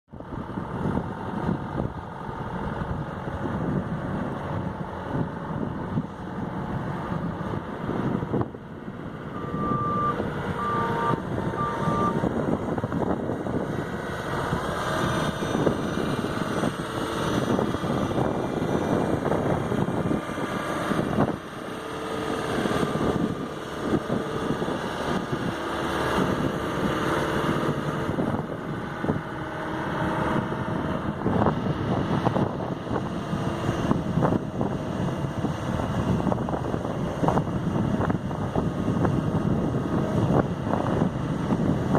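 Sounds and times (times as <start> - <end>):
excavator running: 0.1 - 41.9
short high beeps: 9.4 - 12.2.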